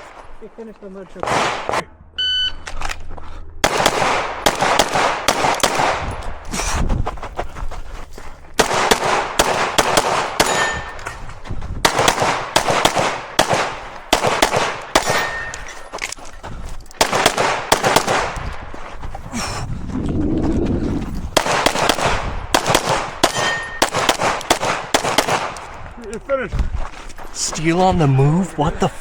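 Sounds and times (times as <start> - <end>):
pistol shots in bursts: 1.2 - 1.9, 3.6 - 6.4, 8.6 - 11.2, 11.8 - 16.1, 17.0 - 18.8, 21.3 - 25.9
steel targets clanging: 10.4 - 11.2, 15.0 - 16.0, 23.2 - 23.9.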